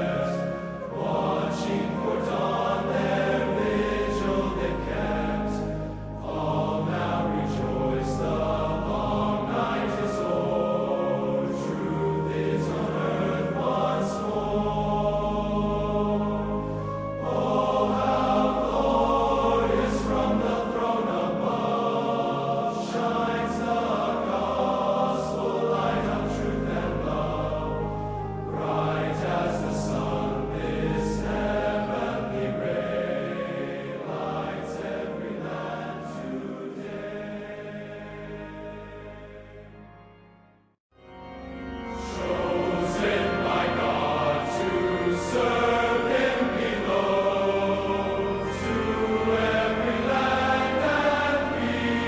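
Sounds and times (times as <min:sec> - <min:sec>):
choir singing a slow hymn: 0:00.0 - 0:39.8, 0:41.1 - 0:52.0
sustained low accompaniment: 0:00.0 - 0:52.0.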